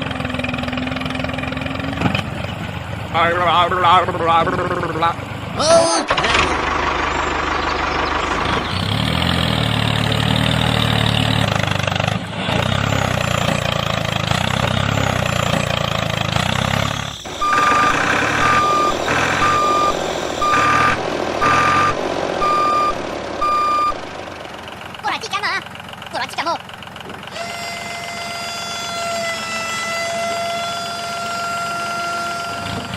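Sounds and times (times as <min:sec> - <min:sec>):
vehicle engine running: 0:00.0 - 0:32.9
reversing alarm beeping: 0:16.6 - 0:24.1.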